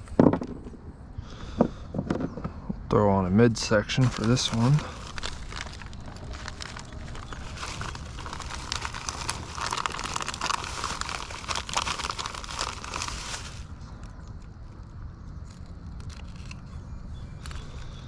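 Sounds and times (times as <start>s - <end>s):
bait crinkling and clicking: 4.0s - 18.0s.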